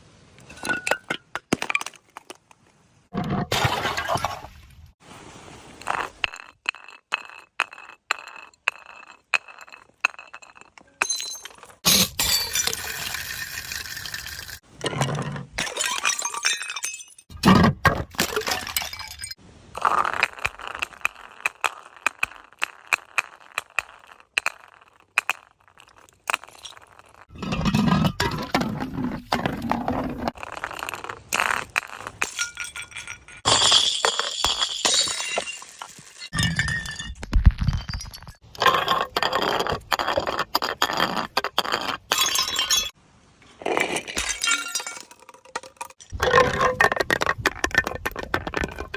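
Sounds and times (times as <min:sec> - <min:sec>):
glass crunching and clinking: 0:05.8 - 0:17.4, 0:18.1 - 0:43.0, 0:43.7 - 0:48.9
glass bottle smashing: 0:10.3 - 0:14.6, 0:31.0 - 0:39.0, 0:42.1 - 0:43.0, 0:43.8 - 0:46.8.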